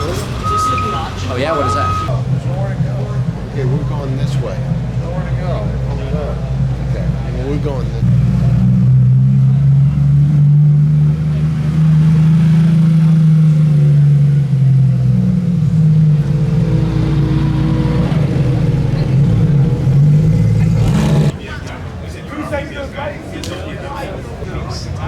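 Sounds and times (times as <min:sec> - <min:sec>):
car engine droning: 0:00.0 - 0:21.5.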